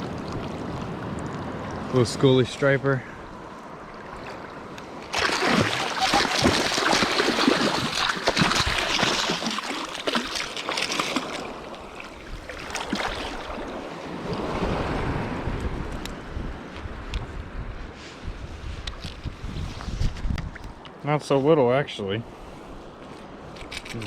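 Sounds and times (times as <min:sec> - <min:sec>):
ocean surf washing ashore: 0:00.0 - 0:18.4
wind buffeting microphone: 0:11.4 - 0:20.8.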